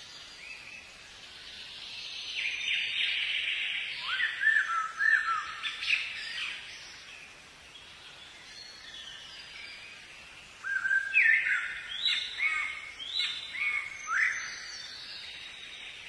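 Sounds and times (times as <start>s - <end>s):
faint high bird calls: 1.9s - 7.3s, 8.2s - 16.0s.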